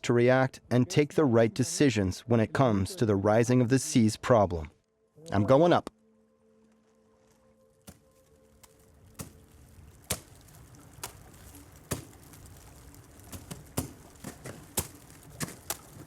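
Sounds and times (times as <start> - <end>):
crunching footsteps: 6.6 - 16.0.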